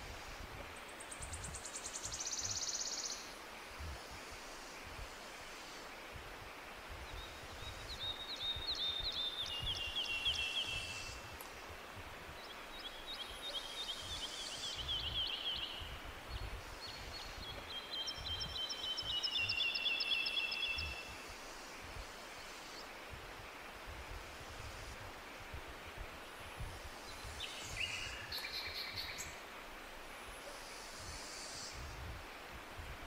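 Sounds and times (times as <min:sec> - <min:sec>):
faint steady hiss: 0:00.0 - 0:33.0
songbird trilling: 0:17.7 - 0:21.1.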